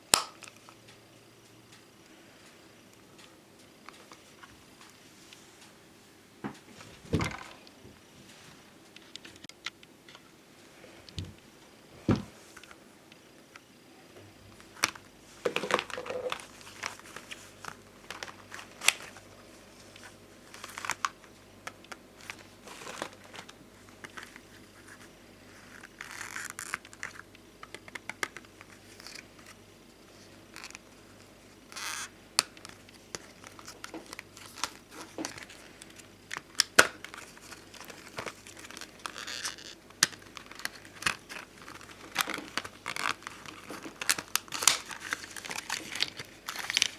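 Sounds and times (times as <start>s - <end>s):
plastic rustles: 22.2s - 29.6s, 31.8s - 46.9s.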